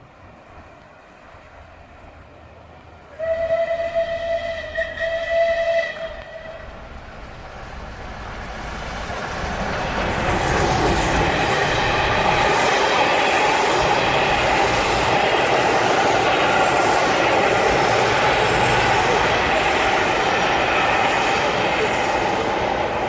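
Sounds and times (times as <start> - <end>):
train approaching: 0.0 - 23.0
steam locomotive whistle: 3.1 - 6.8.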